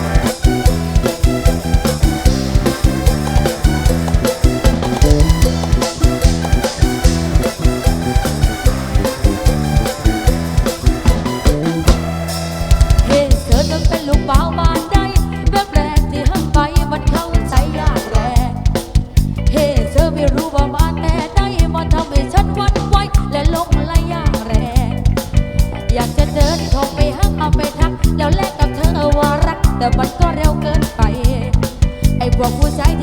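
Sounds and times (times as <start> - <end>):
wavering lead melody: 0.0 - 14.3
bass: 0.0 - 33.0
drum kit beat: 0.0 - 33.0.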